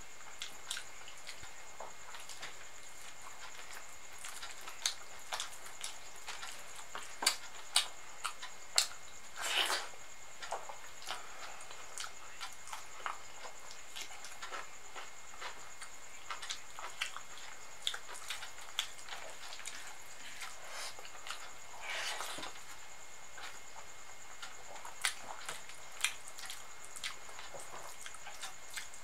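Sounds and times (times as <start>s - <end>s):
wet chewing mouth sounds: 11.0s - 22.7s, 24.4s - 29.0s.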